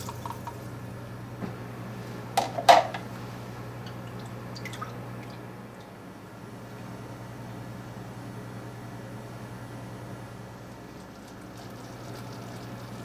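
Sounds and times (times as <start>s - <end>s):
liquid pouring into a saucepan: 10.8s - 13.0s.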